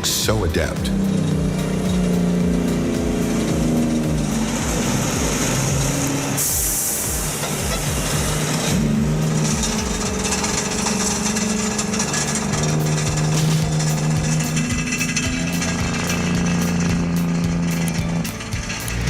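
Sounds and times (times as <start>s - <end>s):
diesel truck engine under load: 0.0s - 19.0s
air brake hiss: 6.4s - 7.1s.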